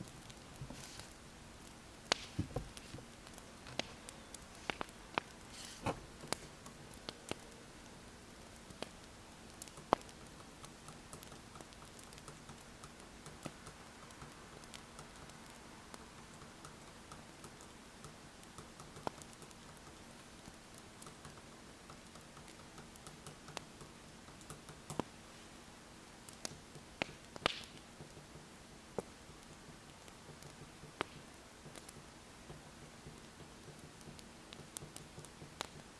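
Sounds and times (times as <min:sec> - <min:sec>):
faint steady hum: 0:00.0 - 0:35.9
wood fire crackling: 0:00.0 - 0:35.9.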